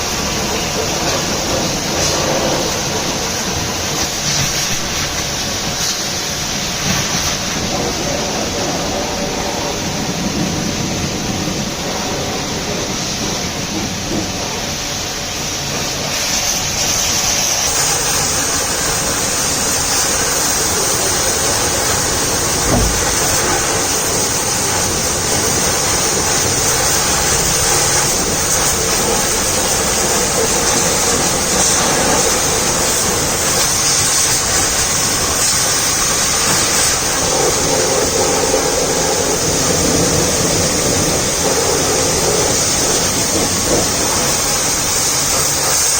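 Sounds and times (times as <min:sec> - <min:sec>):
high-pressure water spray hissing: 0:00.0 - 0:45.9
short thump: 0:22.6 - 0:23.7.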